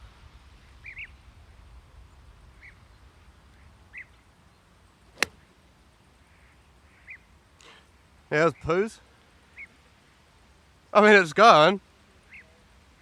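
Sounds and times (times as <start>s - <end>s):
golf club striking ball: 5.1s - 5.4s.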